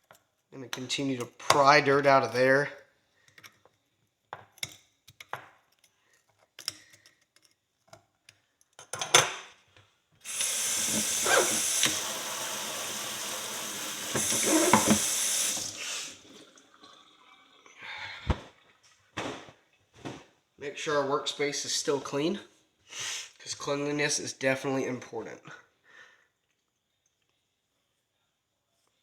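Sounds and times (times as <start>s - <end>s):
knocks under running water: 10.3s - 16.4s
tap running: 10.3s - 16.5s
metal pick scraping horseshoe: 10.8s - 12.0s, 14.2s - 15.0s.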